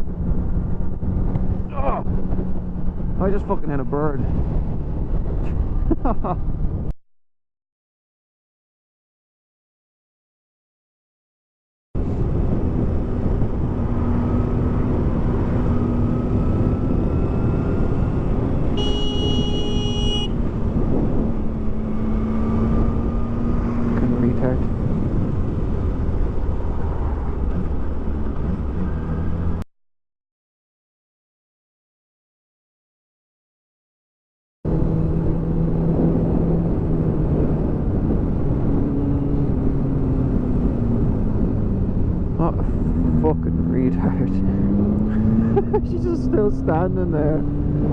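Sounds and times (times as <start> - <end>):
wind rush: 0.0 - 6.9, 12.0 - 29.4, 34.7 - 43.2
vehicle horn: 18.7 - 20.4.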